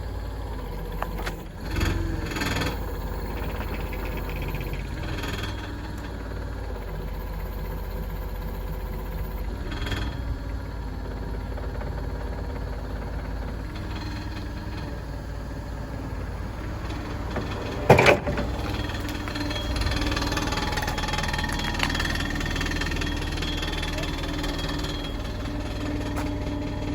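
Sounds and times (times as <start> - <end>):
forklift engine idling: 0.0 - 26.9
loud metal clank: 17.3 - 20.4.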